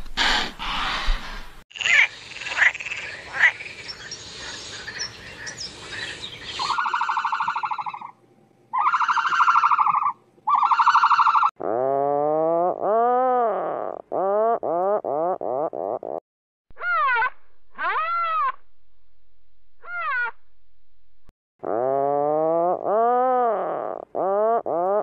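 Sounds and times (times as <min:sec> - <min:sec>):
frog croaking: 0:01.8 - 0:04.0
mixed chirps and short calls: 0:01.8 - 0:08.1
low animal call: 0:08.7 - 0:16.0.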